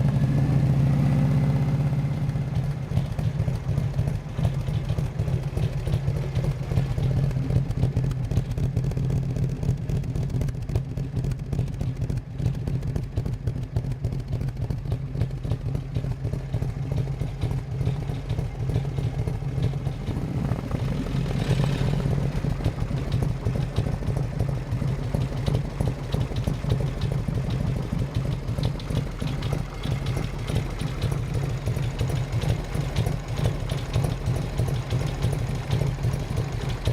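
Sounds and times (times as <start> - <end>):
motorcycle engine idling: 0.0 - 36.9.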